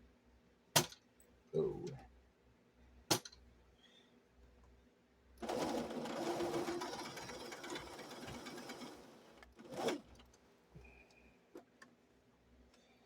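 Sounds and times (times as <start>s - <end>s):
sewing machine stitching: 5.4s - 10.3s.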